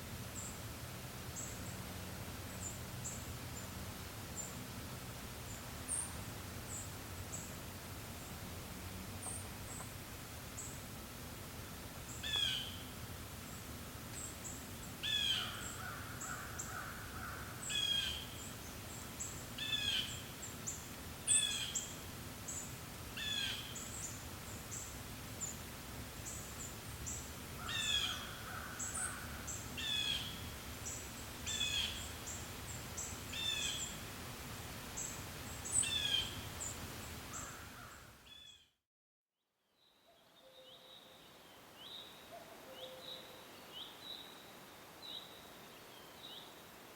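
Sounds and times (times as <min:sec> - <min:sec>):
low breeze: 0:00.0 - 0:38.5, 0:39.8 - 0:46.9
bird chorus: 0:26.2 - 0:32.4.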